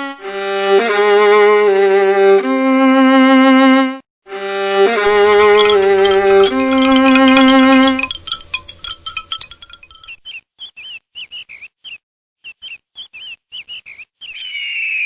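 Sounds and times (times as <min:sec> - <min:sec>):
bowed-string music: 0:00.0 - 0:02.4, 0:04.3 - 0:08.1
bird chirping: 0:05.5 - 0:15.0.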